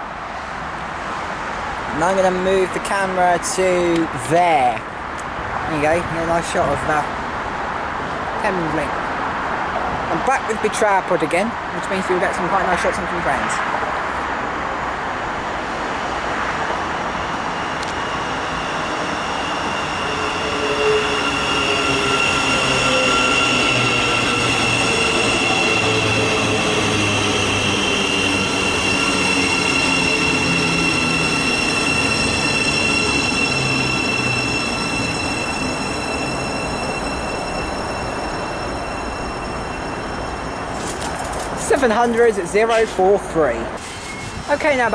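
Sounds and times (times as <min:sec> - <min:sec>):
train low rumble: 0:14.9 - 0:44.7
train high-pitched whining: 0:15.2 - 0:44.9.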